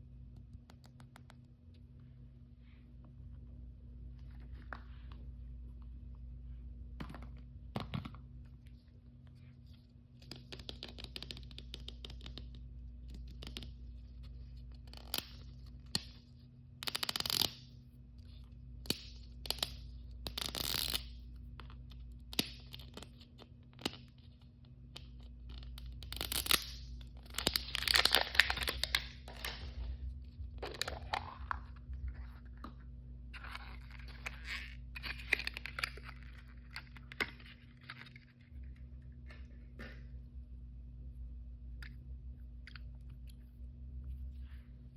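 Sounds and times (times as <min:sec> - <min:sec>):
plastic wrapper ripping and crinkling: 0:27.2 - 0:29.7
low hum: 0:28.4 - 0:44.9.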